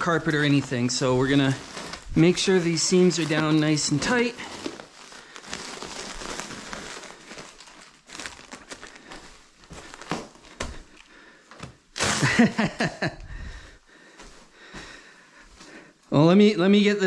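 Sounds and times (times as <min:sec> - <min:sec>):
film and paper crinkling: 0:00.0 - 0:13.0.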